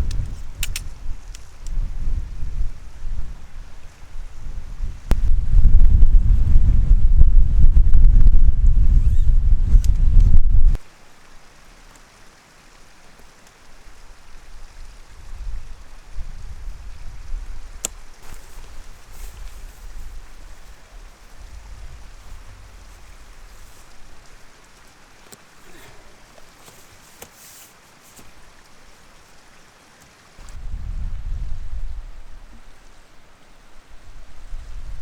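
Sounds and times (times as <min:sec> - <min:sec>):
sharp click: 0:00.0 - 0:01.8
low rumbling gusts: 0:00.0 - 0:10.8, 0:14.3 - 0:25.2, 0:30.4 - 0:33.0
wind buffeting microphone: 0:00.0 - 0:10.8, 0:14.3 - 0:24.8, 0:30.4 - 0:32.8.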